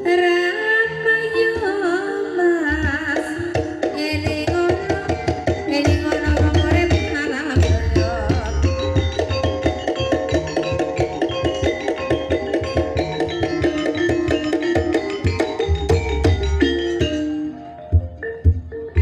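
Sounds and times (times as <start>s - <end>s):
person singing: 0.0s - 9.1s
drums beating: 2.7s - 19.0s.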